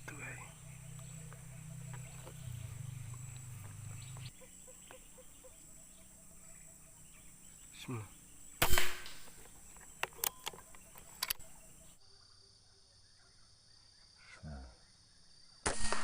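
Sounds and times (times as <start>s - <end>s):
air rifle shot: 8.6s - 9.4s, 15.6s - 16.0s
sharp clicks: 8.6s - 11.8s.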